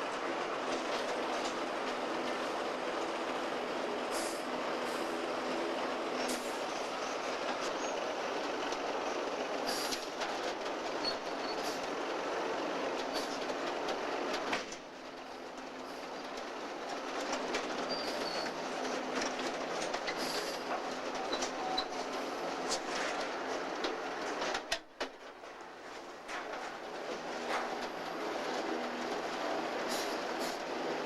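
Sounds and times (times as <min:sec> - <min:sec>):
train rumbling on track: 0:00.0 - 0:31.0
wheels clicking over rail joints: 0:00.0 - 0:31.0
faint wheel squeals: 0:07.6 - 0:08.0, 0:11.0 - 0:11.8, 0:17.8 - 0:18.6.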